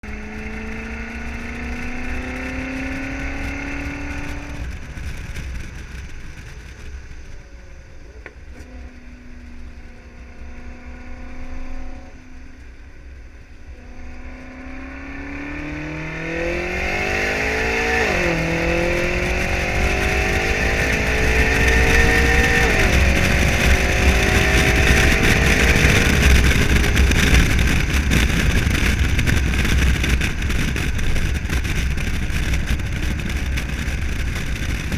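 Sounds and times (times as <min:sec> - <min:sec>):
car engine accelerating hard: 0:00.0 - 0:07.2, 0:08.1 - 0:12.5, 0:13.5 - 0:34.9.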